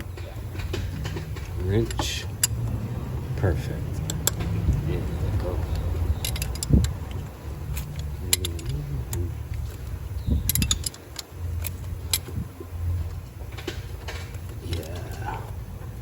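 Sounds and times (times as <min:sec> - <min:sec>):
low steady hum: 0:00.0 - 0:16.0
metal tools clinking: 0:00.1 - 0:02.8, 0:03.8 - 0:12.4
wrench clicks: 0:05.6 - 0:12.4.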